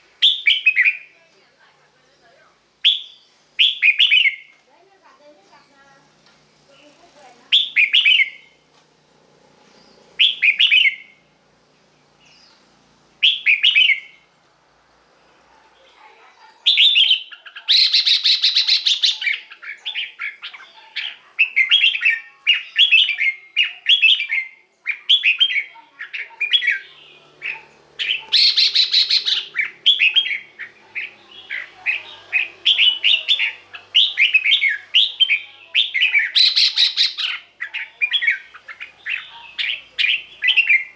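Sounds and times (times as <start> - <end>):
bird singing: 0.0 - 1.3, 2.0 - 4.6, 6.7 - 8.6, 9.6 - 14.3, 15.8 - 40.9
bird grating call: 16.7 - 24.3, 24.9 - 40.9.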